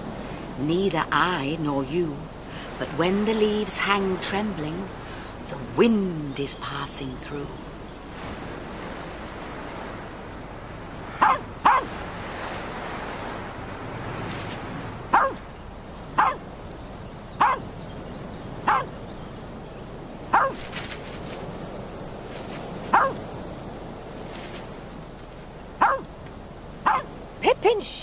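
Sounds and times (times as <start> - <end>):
dog barking in sharp yaps: 11.2 - 12.0, 15.1 - 15.4, 16.2 - 16.4, 17.4 - 17.7, 18.7 - 18.9, 20.3 - 20.6, 22.9 - 23.2, 25.8 - 26.1, 26.8 - 27.1.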